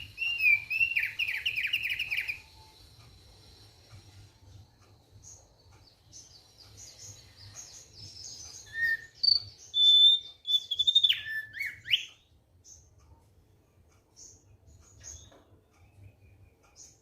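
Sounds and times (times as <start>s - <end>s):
bird twittering and whistling: 0.0s - 3.1s, 5.2s - 12.9s.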